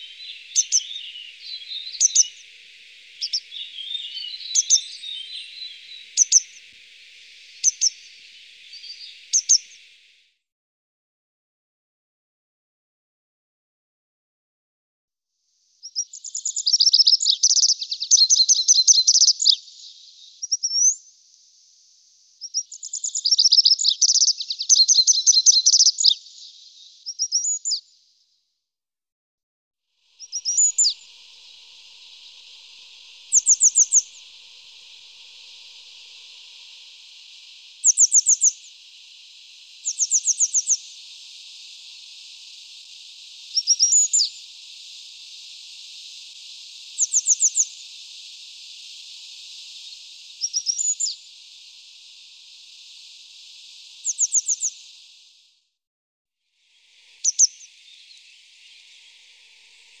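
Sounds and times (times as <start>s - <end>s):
birds chirping: 0.0s - 10.2s, 21.6s - 27.8s, 30.2s - 55.4s
high-pitched hiss: 0.0s - 10.4s, 15.4s - 28.2s, 29.9s - 55.8s, 56.4s - 60.0s.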